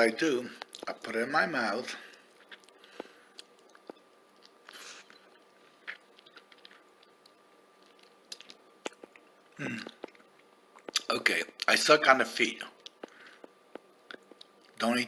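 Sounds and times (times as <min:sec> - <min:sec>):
person chewing and sucking: 0:02.2 - 0:11.6, 0:12.8 - 0:14.8.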